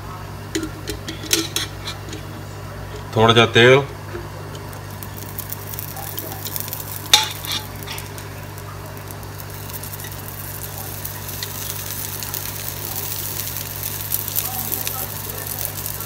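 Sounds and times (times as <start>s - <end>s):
oil sizzling on a griddle: 3.7s - 16.0s.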